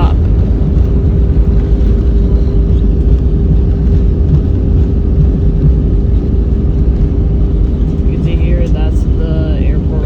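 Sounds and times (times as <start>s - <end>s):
jet engine tone: 0.0s - 10.0s
wheels rumbling on runway: 0.0s - 10.0s.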